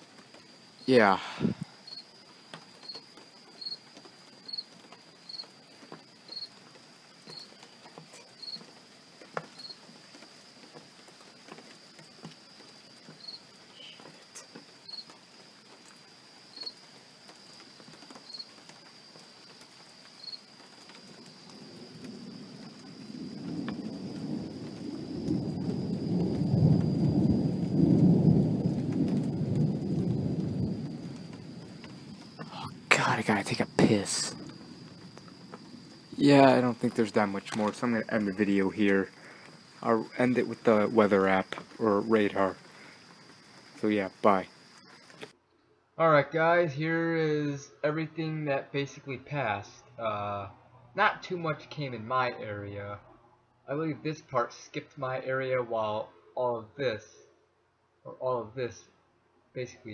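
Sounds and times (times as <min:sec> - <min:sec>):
insect chirping: 0:00.0 - 0:59.9
rolling thunder: 0:21.0 - 0:43.0.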